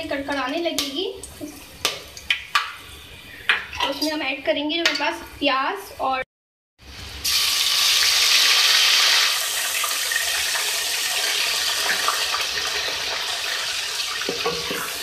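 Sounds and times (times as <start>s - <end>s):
paste sizzling in hot oil: 7.2s - 15.0s.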